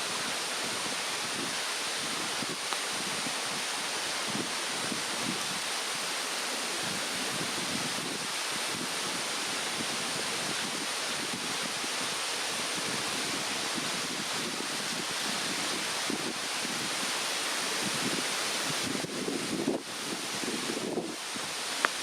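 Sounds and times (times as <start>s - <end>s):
campfire burning softly: 0.0s - 13.0s
mountain stream rushing: 0.0s - 22.0s.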